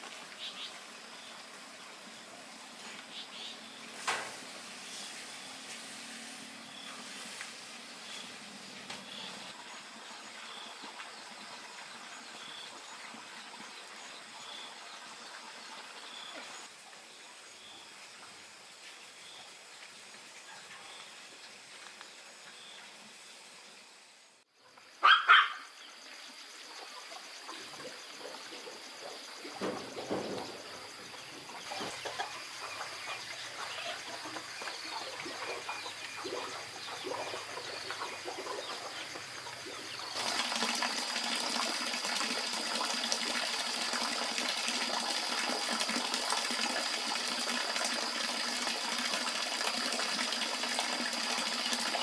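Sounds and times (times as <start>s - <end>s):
chickens: 31.5s - 39.6s.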